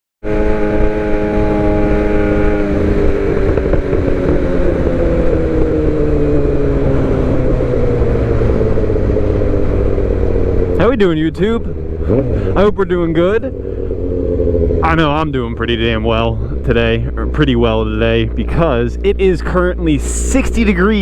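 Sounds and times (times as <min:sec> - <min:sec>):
sport bike engine: 0:00.2 - 0:21.0
wind noise: 0:00.2 - 0:21.0
low rumble: 0:00.6 - 0:21.0.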